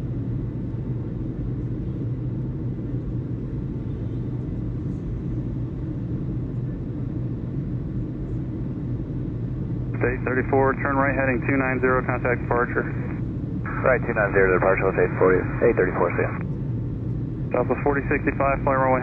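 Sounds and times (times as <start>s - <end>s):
constant low hum: 0.0s - 19.0s
steady low rumble: 8.3s - 19.0s.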